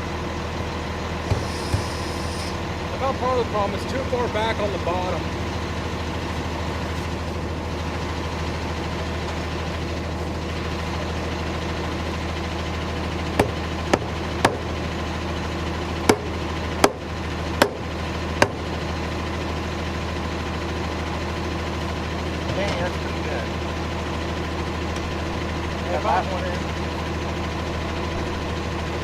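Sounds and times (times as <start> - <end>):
low engine-like drone: 0.0 - 29.0
sharp knocks on metal: 1.3 - 1.9, 13.4 - 14.7, 16.1 - 17.0, 17.6 - 17.8, 18.4 - 18.6.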